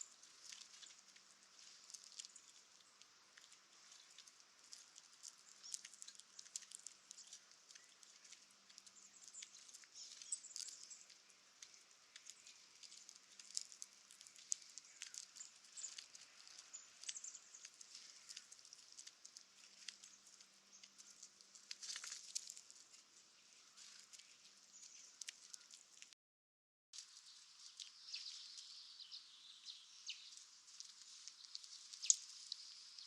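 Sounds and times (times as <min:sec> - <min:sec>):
small animal rustling and clicking: 0:00.0 - 0:26.2, 0:27.0 - 0:28.8, 0:30.1 - 0:33.0.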